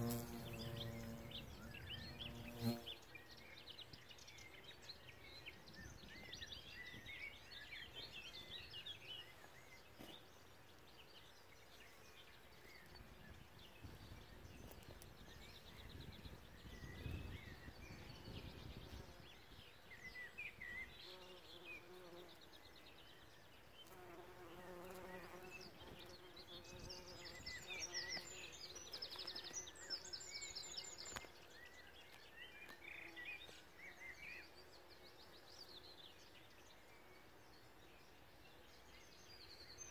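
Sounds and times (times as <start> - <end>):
bees buzzing: 0.0 - 1.5
faint birds chirping: 0.0 - 39.9.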